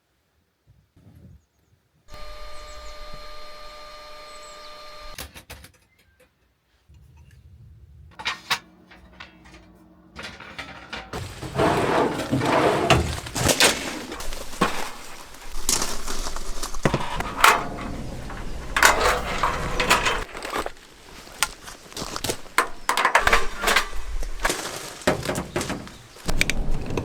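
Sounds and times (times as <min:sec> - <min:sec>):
crunching and crackling of handling: 0:11.0 - 0:27.0.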